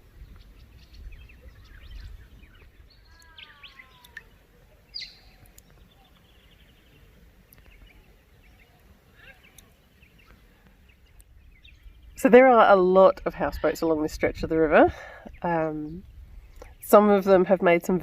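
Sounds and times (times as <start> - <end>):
birds calling and chirping: 0.0 - 12.4
sharp high falling bird call: 3.0 - 4.4.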